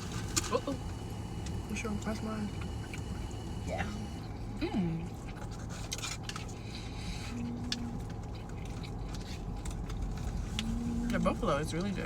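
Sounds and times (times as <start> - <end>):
chewing: 2.6 - 12.0.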